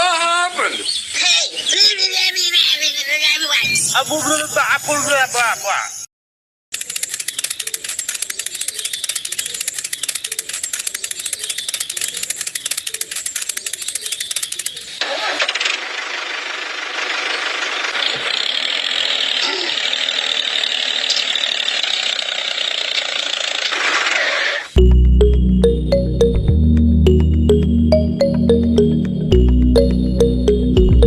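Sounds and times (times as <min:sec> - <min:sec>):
small pump motor rattling: 0:06.7 - 0:24.7.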